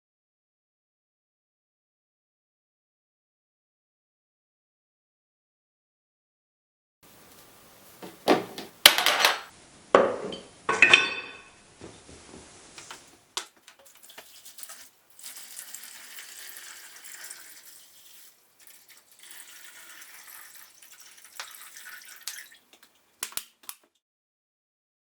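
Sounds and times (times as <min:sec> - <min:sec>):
water running: 0:12.8 - 0:23.7.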